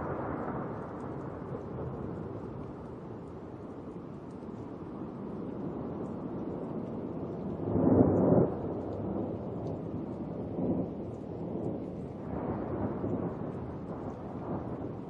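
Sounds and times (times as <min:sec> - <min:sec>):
rolling thunder: 0:06.5 - 0:15.0.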